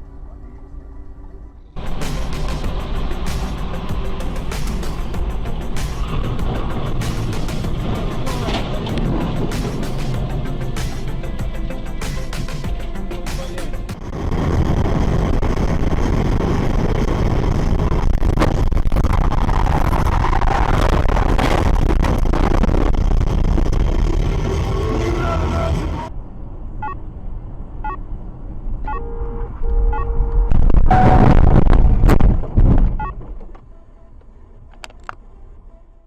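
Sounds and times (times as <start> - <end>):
vehicle and road noise: 0.0 - 36.0
brief steady beep: 28.9 - 31.4.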